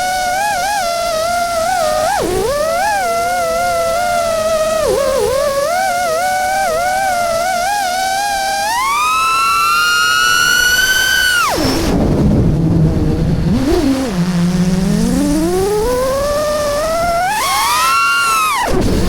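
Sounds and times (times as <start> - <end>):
drone motors whining: 0.0 - 19.0
rush of air: 10.5 - 15.6.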